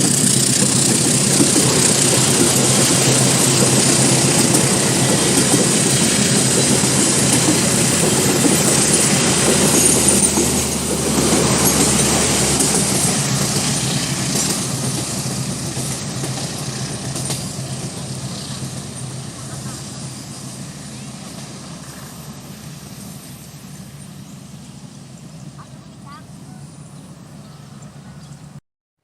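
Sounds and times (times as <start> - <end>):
train passing at speed: 0.0 - 28.6.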